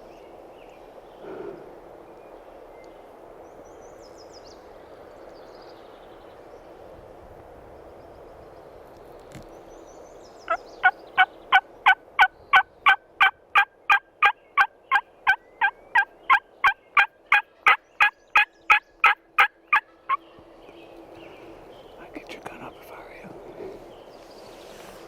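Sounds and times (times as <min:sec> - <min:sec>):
turkey yelps: 0:11.2 - 0:20.2.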